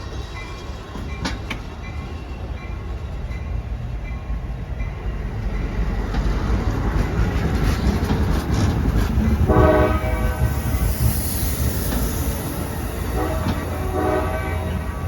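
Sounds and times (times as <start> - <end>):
train wheels rumbling on rails: 0.0 - 15.0
train horn blast: 9.4 - 10.8, 13.0 - 15.0.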